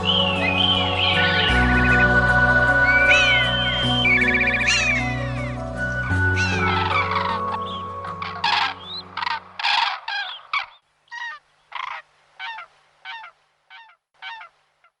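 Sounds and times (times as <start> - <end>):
background music: 0.0 - 9.9
bird calling: 0.0 - 15.0.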